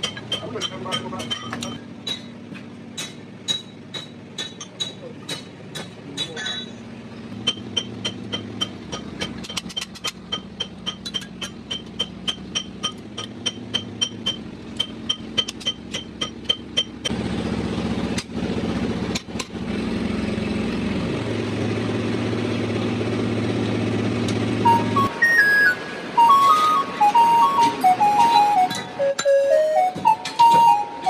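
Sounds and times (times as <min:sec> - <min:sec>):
hammer striking metal: 0:00.0 - 0:06.8, 0:07.4 - 0:17.1
low engine hum: 0:17.0 - 0:31.0
louder engine running: 0:17.1 - 0:29.0.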